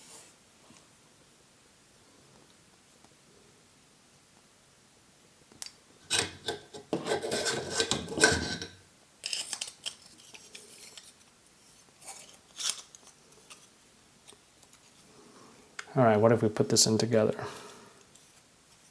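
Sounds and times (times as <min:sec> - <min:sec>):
metal rubbing: 0:06.1 - 0:08.8
metal parts scraping and clicking: 0:06.1 - 0:11.2, 0:12.0 - 0:13.7.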